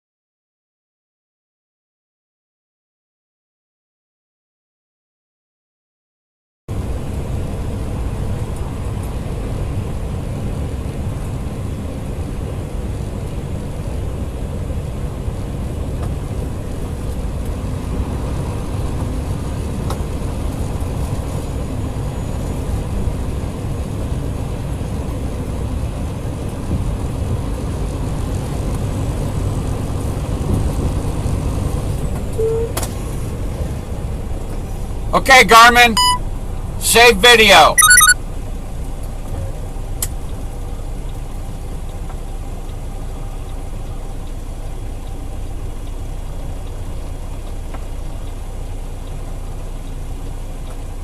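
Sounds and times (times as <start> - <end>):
car road and engine noise: 6.7 - 51.0
brief tone: 32.4 - 32.8, 35.9 - 36.2, 37.5 - 38.2.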